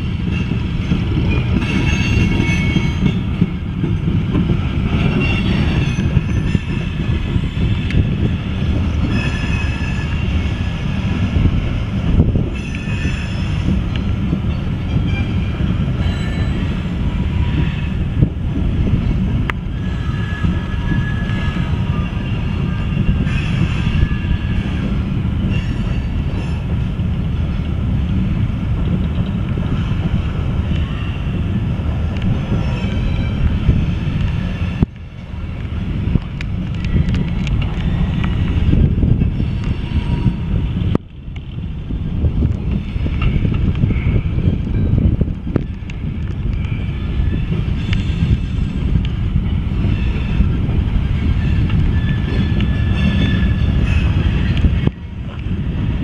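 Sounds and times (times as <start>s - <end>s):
freight train rumbling past: 0.0s - 56.0s
high wheel squeals: 9.0s - 11.0s, 49.8s - 54.9s.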